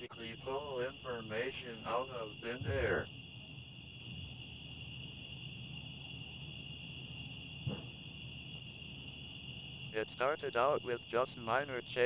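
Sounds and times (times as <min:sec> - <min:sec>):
crickets chirping: 0:00.0 - 0:12.0
low rumble: 0:02.4 - 0:03.1.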